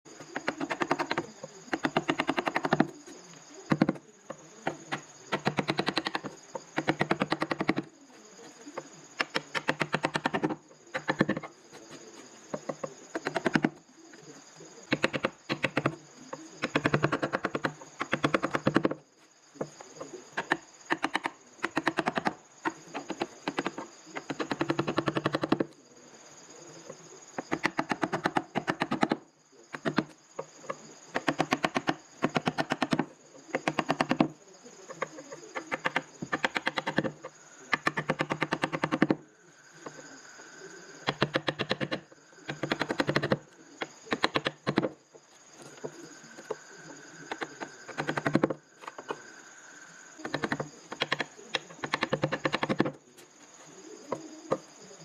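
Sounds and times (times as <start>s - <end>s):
carving tool clicking into wood: 0.4s - 2.9s, 4.7s - 7.8s, 9.2s - 11.5s, 12.6s - 13.7s, 14.9s - 16.0s, 20.4s - 22.3s, 27.4s - 29.2s, 31.2s - 34.3s, 35.8s - 39.2s, 41.0s - 43.4s, 44.1s - 44.9s, 47.3s - 49.1s, 50.2s - 52.9s.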